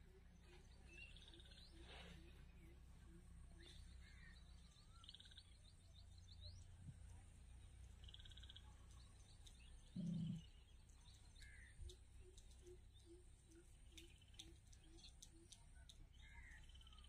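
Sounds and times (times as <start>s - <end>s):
low steady hum: 0.0s - 17.0s
small birds chirping: 0.0s - 17.0s.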